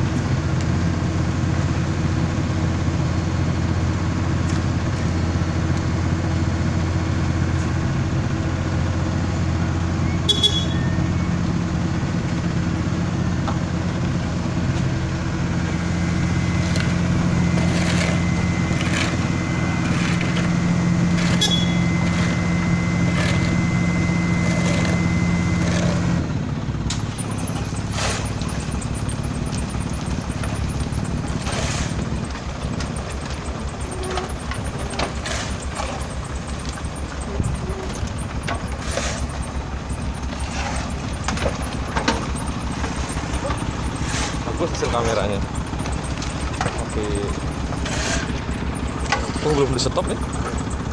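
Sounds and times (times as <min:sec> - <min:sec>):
milling machine diesel drone: 0:00.0 - 0:50.9
knocks and clatter: 0:26.9 - 0:50.9.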